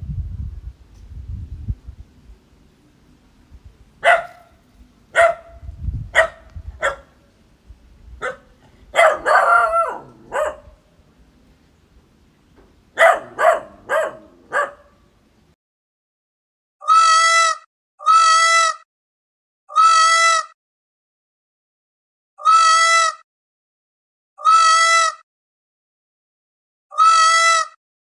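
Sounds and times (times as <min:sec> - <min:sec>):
dog barking: 0:04.0 - 0:07.2, 0:08.2 - 0:10.8, 0:13.0 - 0:15.0.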